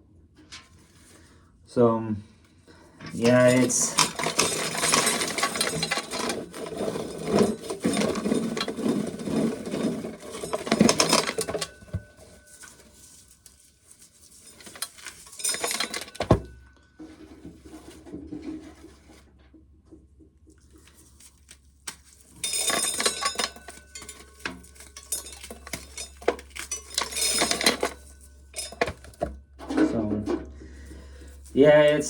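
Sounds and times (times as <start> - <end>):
dishes and cutlery clattering: 3.1 - 13.3, 14.2 - 18.7, 21.9 - 32.0.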